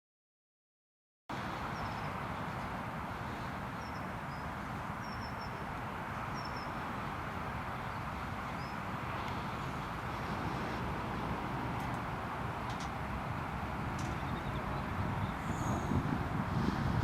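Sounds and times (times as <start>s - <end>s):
steady rushing noise: 1.3s - 17.0s
small birds chirping: 1.6s - 6.9s, 7.7s - 9.9s, 13.9s - 16.1s.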